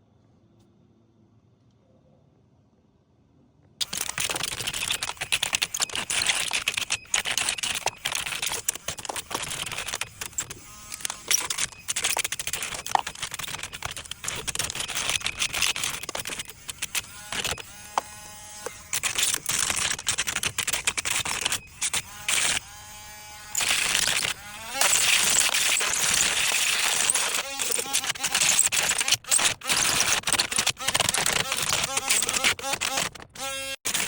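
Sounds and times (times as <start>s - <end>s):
power sander grinding wood: 4.2s - 29.0s
motor whine: 21.0s - 27.8s.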